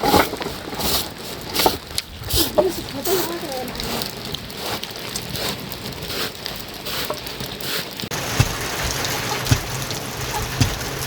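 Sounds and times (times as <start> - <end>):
rain falling: 0.4 - 11.0
sharp knocks: 8.1 - 11.0.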